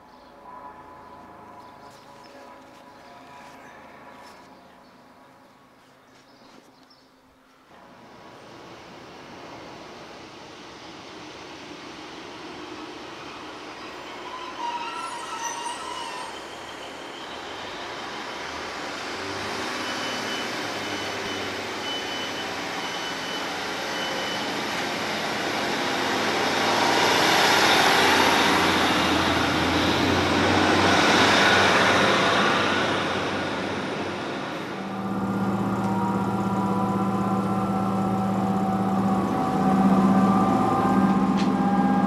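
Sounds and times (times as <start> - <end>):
train rumble and wheel noise: 0.0 - 42.0
low engine hum: 28.3 - 42.0.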